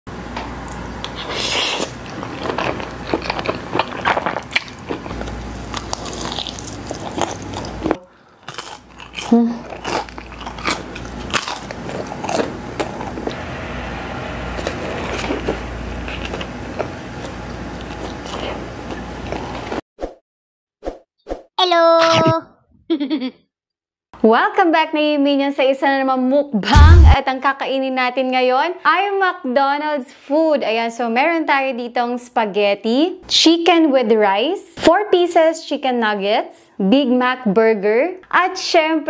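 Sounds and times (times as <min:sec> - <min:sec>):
woman chewing food: 0:00.7 - 0:13.4, 0:14.6 - 0:19.8
crunchy bites: 0:01.0 - 0:13.4.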